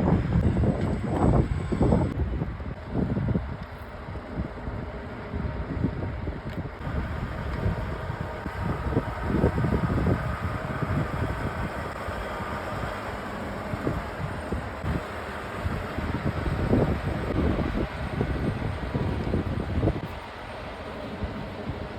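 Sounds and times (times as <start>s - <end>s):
wind noise on microphone: 0.0s - 21.9s
diesel truck engine rumbling: 6.7s - 21.9s.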